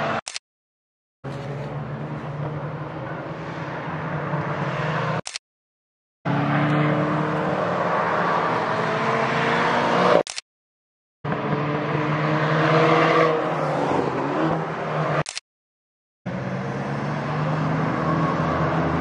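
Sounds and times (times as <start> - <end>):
car engines running under load: 1.2 - 4.7
car passing: 11.3 - 15.2.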